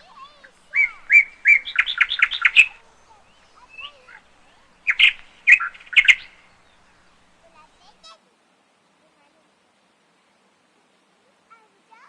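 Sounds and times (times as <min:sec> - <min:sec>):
bird chirping: 0:00.0 - 0:08.0.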